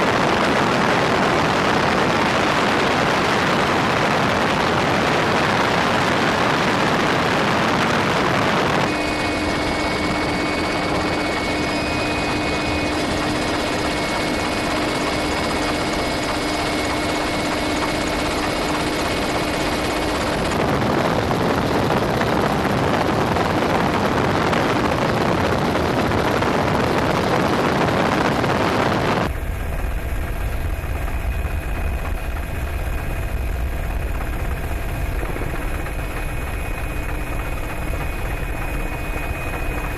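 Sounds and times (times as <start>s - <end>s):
helicopter engine and rotors: 0.0s - 39.9s
thin steady whine: 0.0s - 39.9s
heavy low rumble: 17.8s - 39.9s.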